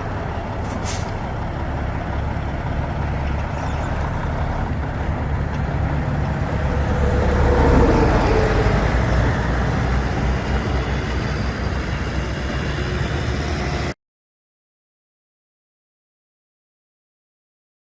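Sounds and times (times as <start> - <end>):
diesel truck engine rumbling: 0.0 - 14.0.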